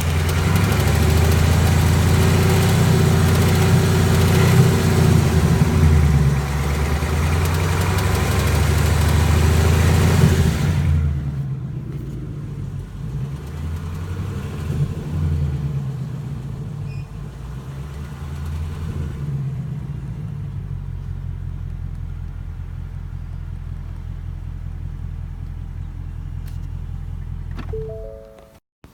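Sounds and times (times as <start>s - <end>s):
car engine idling: 0.0s - 14.4s, 19.6s - 27.8s
engine ticking rattle: 0.0s - 19.0s, 19.9s - 27.8s.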